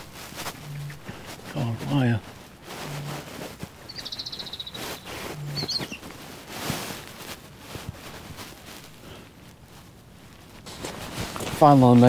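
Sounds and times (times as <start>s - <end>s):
footsteps on earth path: 0.0s - 12.0s
outdoor background noise: 0.0s - 12.0s
short high bird call: 3.9s - 6.0s.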